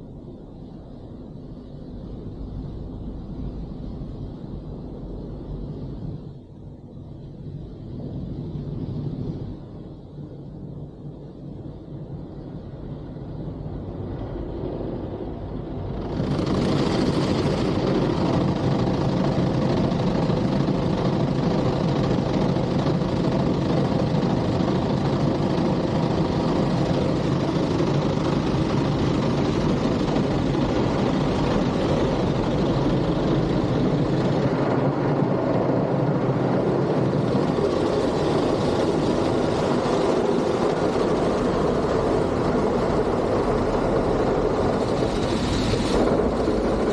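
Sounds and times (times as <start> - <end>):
low motor hum: 12.8 - 46.9
car wash machinery rushing: 16.0 - 46.9.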